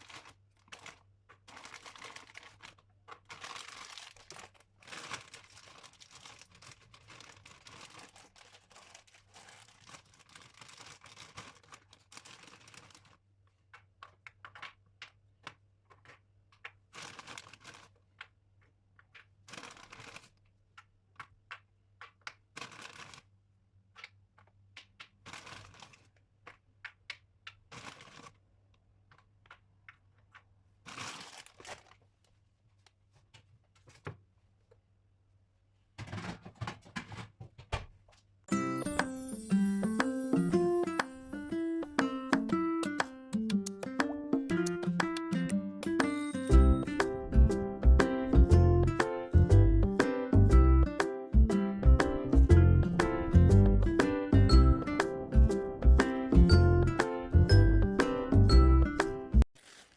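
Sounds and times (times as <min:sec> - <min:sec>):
rustling and crinkling: 0:00.0 - 0:23.3, 0:23.9 - 0:34.9, 0:35.7 - 0:38.4, 0:59.4 - 0:59.9.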